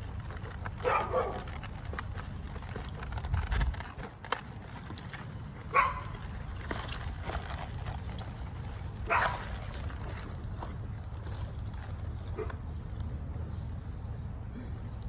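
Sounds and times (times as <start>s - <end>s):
low outdoor rumble: 0.0s - 15.0s
dog yipping: 0.8s - 1.4s, 5.7s - 6.1s, 9.1s - 9.5s.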